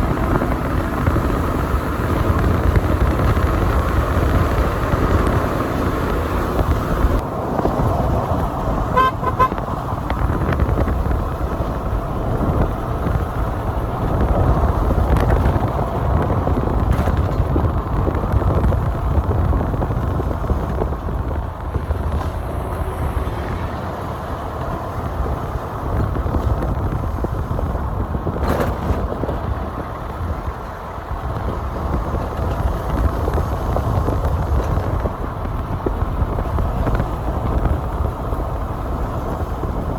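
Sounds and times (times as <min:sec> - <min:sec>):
road vehicle rumble: 0:00.0 - 0:39.9
horn toots: 0:08.9 - 0:09.8.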